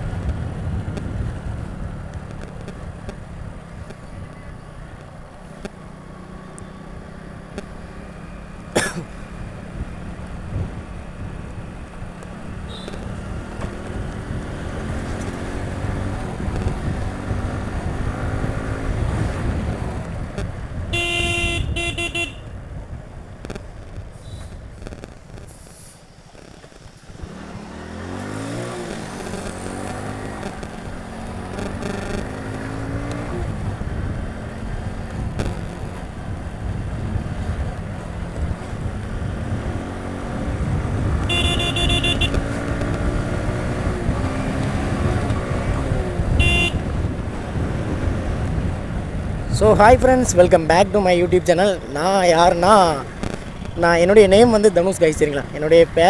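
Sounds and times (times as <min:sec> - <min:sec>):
motorcycle engine revving: 0:00.0 - 0:56.0
motorcycle horn: 0:12.5 - 0:14.1, 0:20.4 - 0:22.6, 0:24.2 - 0:24.6, 0:41.0 - 0:43.3, 0:44.0 - 0:47.7.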